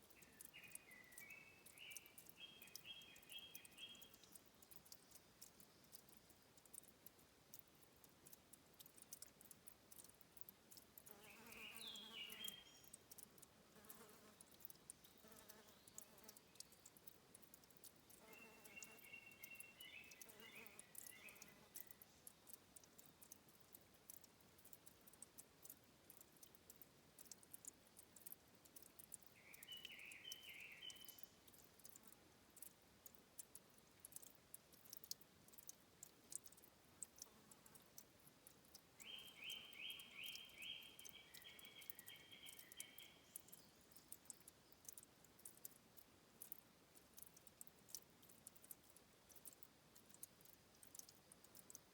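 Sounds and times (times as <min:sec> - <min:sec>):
bird chirping: 0:00.0 - 0:06.8, 0:11.0 - 0:17.1, 0:18.0 - 0:23.3, 0:29.2 - 0:31.6, 0:39.0 - 0:45.0
water trickling and dripping: 0:00.0 - 0:51.9.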